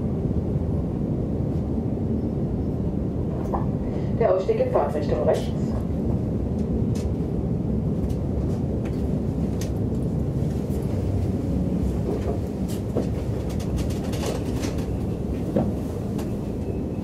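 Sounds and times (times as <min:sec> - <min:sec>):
train carriage rumbling: 0:00.0 - 0:17.0
wheels clicking on rails: 0:12.0 - 0:16.7.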